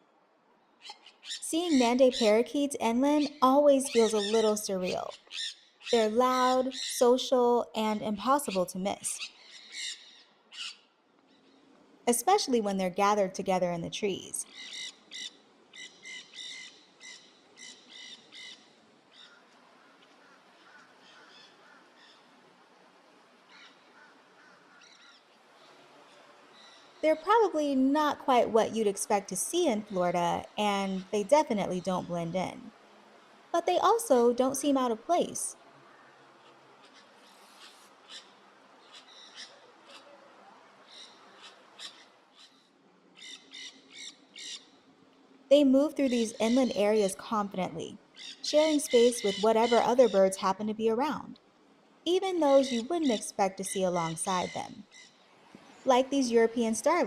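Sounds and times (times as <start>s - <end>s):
parakeets calling: 3.1s - 7.1s, 8.4s - 10.8s, 14.5s - 22.2s, 48.2s - 50.7s
parakeets squawking: 3.8s - 7.0s, 48.2s - 50.5s.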